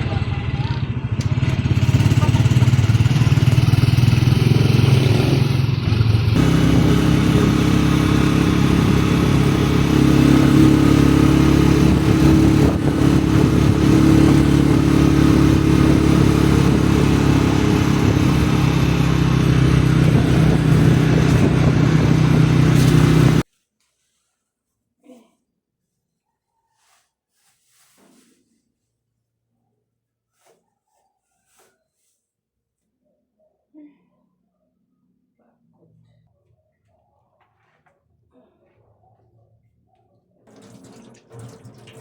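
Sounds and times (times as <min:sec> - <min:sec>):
motorcycle engine running: 0:00.0 - 0:23.4.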